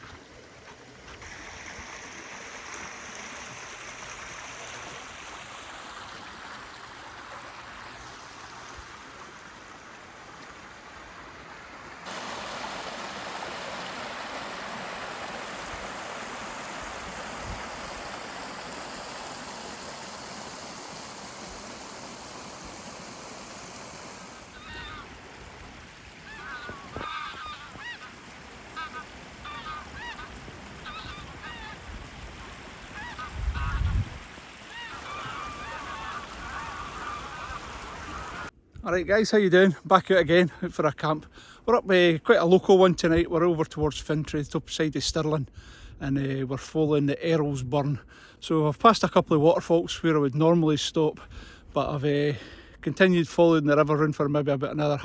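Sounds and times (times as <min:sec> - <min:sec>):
rushing river and waterfall: 0:00.0 - 0:38.5
geese honking: 0:12.0 - 0:25.2, 0:26.1 - 0:38.5.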